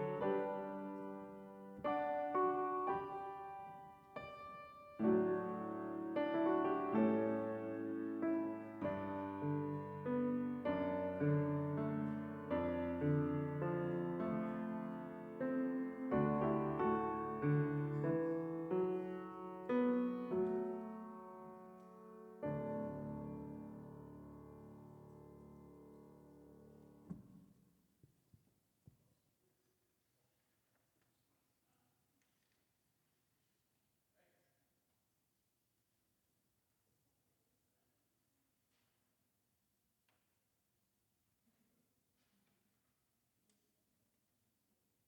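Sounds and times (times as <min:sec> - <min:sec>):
piano playing slow chords: 0:00.0 - 0:27.0.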